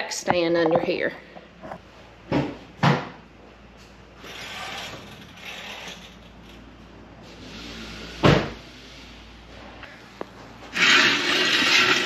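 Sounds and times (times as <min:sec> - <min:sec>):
metal stand scraping floor: 0:04.2 - 0:06.6, 0:10.6 - 0:12.0.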